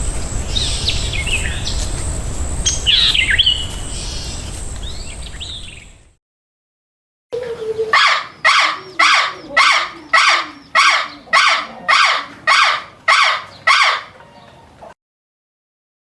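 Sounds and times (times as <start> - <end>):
animal harsh calls: 7.4 - 14.3.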